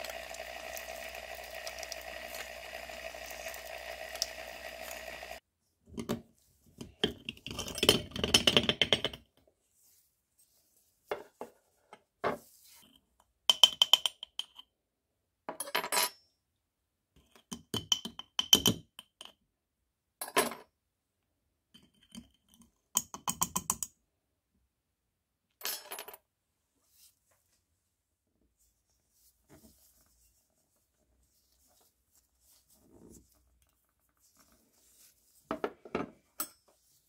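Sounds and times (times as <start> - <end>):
tools clinking and clicking: 36.4 - 36.7.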